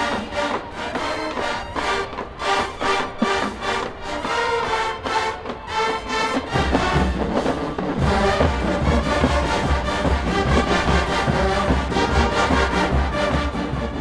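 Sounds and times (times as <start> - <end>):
marching band brass: 0.0 - 14.0
heavy low drum beat: 6.5 - 14.0.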